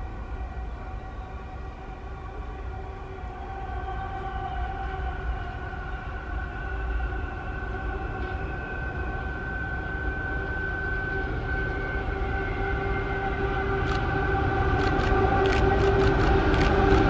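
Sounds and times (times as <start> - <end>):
train approaching: 0.0 - 17.0.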